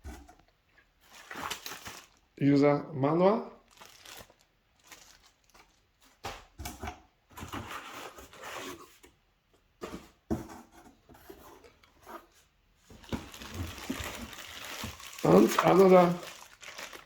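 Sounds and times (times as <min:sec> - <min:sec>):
cardboard rustling: 0:00.1 - 0:02.3, 0:09.8 - 0:17.0
plastic wrap rustling: 0:00.8 - 0:02.4, 0:03.6 - 0:06.6, 0:12.9 - 0:17.0.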